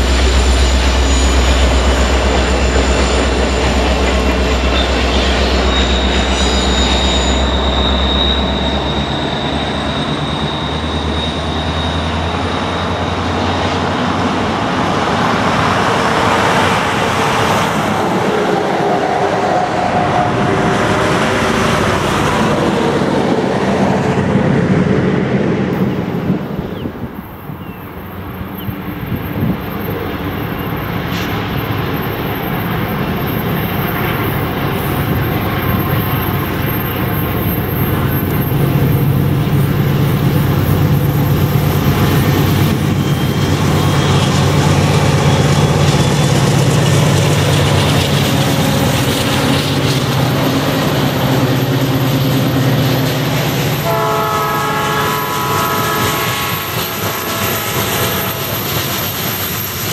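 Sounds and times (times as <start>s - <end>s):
diesel locomotive engines droning: 0.0s - 59.9s
freight cars rolling on rails: 0.0s - 59.9s
locomotive horn chord: 53.8s - 58.6s.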